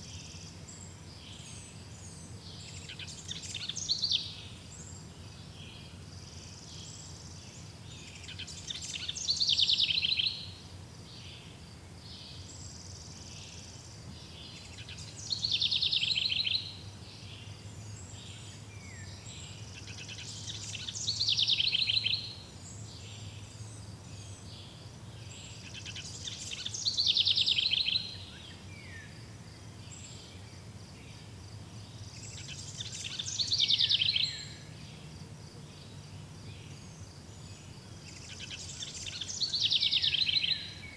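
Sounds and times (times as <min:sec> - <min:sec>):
songbird trilling: 0:08.1 - 0:10.5, 0:14.4 - 0:16.8, 0:19.8 - 0:23.4, 0:25.5 - 0:29.1, 0:32.0 - 0:34.8, 0:36.6 - 0:40.9.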